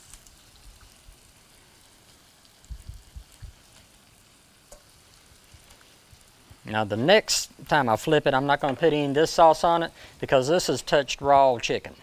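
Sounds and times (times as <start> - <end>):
chicken sizzling in a skillet: 0.0 - 11.9
dull low thumps: 2.7 - 3.6.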